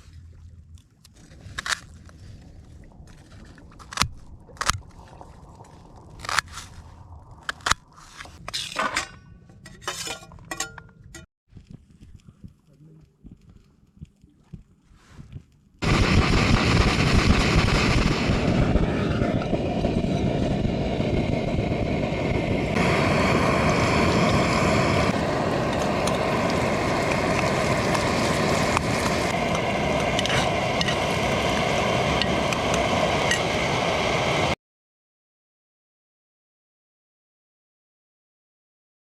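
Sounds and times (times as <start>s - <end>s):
wind and road noise: 0.0s - 9.0s, 15.8s - 34.6s.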